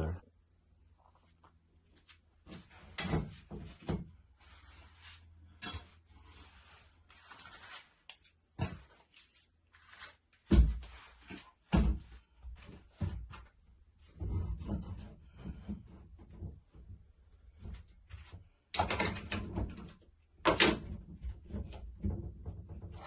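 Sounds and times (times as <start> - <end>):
rustling: 1.1 - 13.5
knocks and clunks: 14.1 - 23.0.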